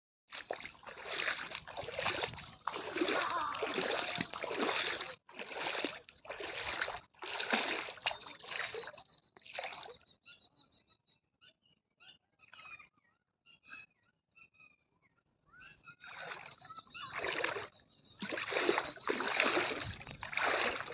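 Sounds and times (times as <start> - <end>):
water splashing: 0.3 - 10.0, 16.0 - 20.9.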